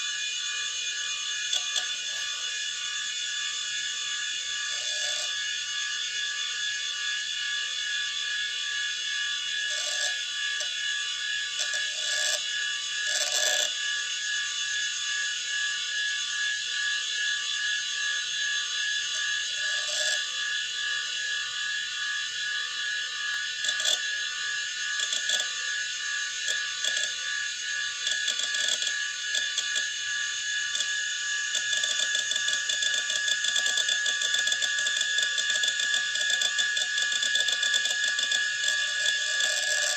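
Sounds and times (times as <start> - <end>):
hard drive high whine: 0.0 - 39.9.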